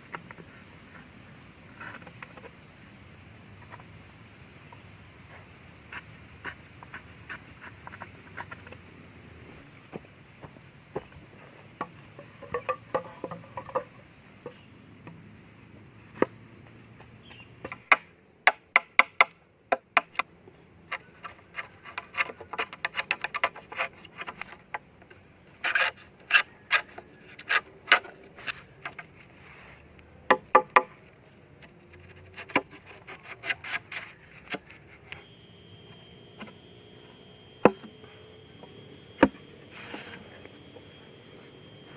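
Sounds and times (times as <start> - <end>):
faint steady hiss: 0.0 - 18.7, 27.5 - 41.9.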